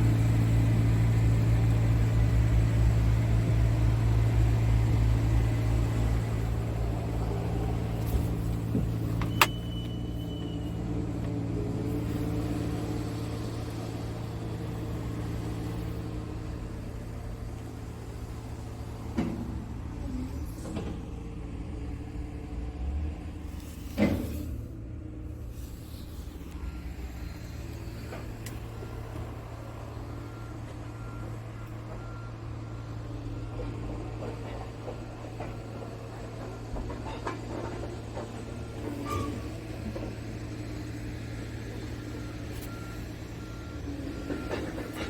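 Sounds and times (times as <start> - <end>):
diesel truck engine idling: 0.0 - 45.0.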